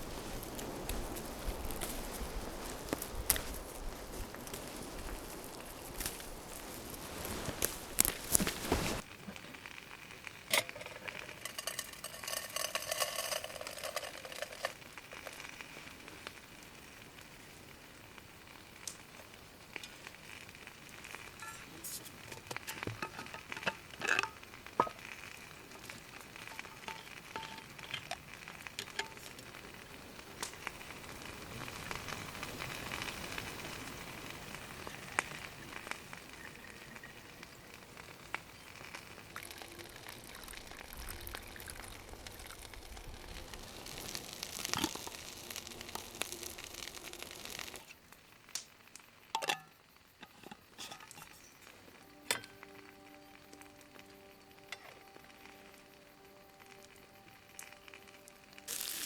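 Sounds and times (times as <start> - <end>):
fire crackling and clicking: 0.0 - 59.0
water heating sizzling hiss: 0.0 - 59.0.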